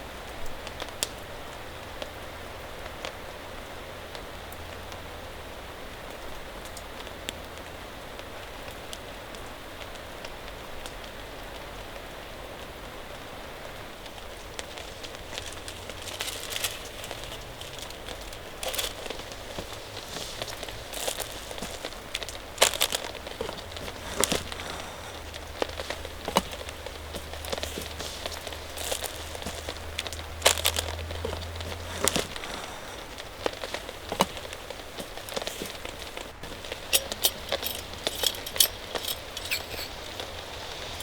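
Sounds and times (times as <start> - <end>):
crinkling rustling clicks: 14.0 - 41.0.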